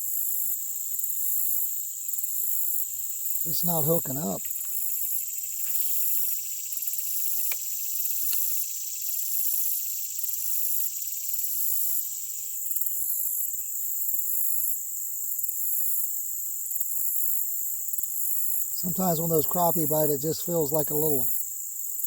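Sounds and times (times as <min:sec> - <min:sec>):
crickets and katydids trilling: 0:00.0 - 0:22.0.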